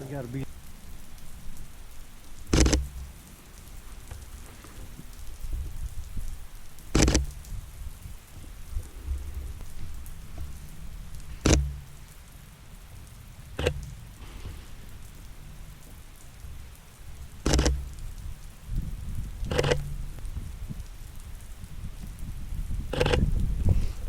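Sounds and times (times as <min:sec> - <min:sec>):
steady rain pattering: 0:00.0 - 0:24.0
short sharp clicks: 0:02.5 - 0:03.0, 0:06.9 - 0:07.4, 0:11.4 - 0:11.8, 0:13.6 - 0:13.9, 0:17.5 - 0:18.0, 0:19.5 - 0:19.9.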